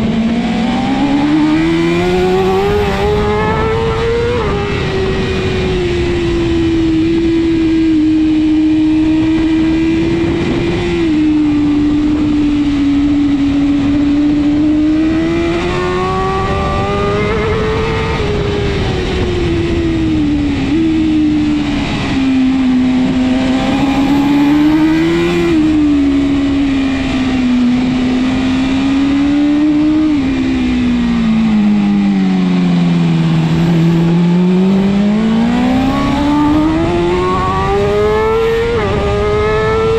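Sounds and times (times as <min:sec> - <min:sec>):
motorcycle engine at racing speed: 0:00.0 - 0:39.9
wind rushing: 0:33.1 - 0:39.9.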